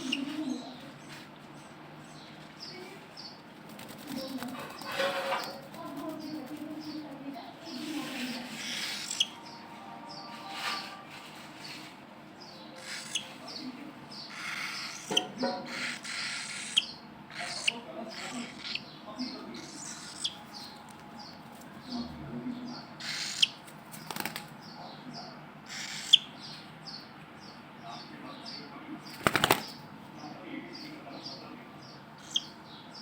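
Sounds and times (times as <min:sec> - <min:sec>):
wings flapping: 0:03.6 - 0:08.8, 0:23.5 - 0:24.6, 0:29.1 - 0:29.9
cockatiels chirping: 0:07.7 - 0:09.6, 0:12.8 - 0:20.8, 0:23.0 - 0:24.2, 0:25.7 - 0:26.6, 0:32.2 - 0:32.6.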